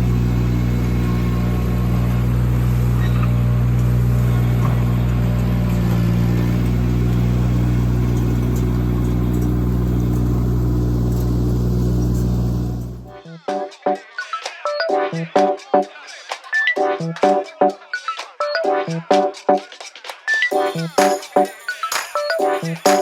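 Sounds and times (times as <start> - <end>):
skid steer engine running: 0.0 - 13.1.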